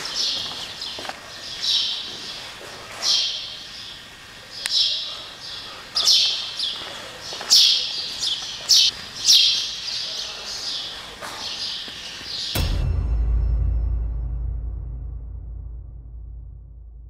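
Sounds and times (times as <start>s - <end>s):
small bird chirping with echo: 0.0s - 12.6s
low steady drone: 12.6s - 17.0s.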